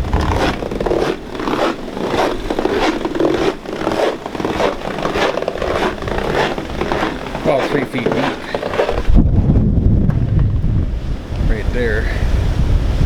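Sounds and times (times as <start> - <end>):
footsteps crunching through snow: 0.0 - 9.2.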